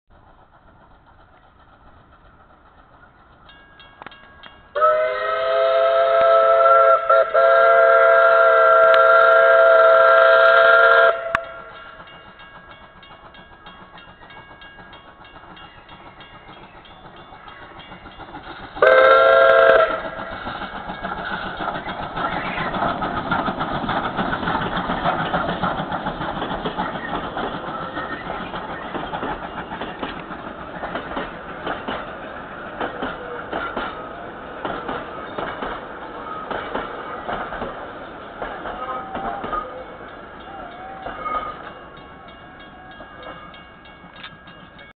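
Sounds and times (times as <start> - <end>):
train wheels rumbling and rattling: 0.1 - 45.0
steam locomotive whistle: 4.7 - 11.9, 18.8 - 20.6, 38.6 - 41.7.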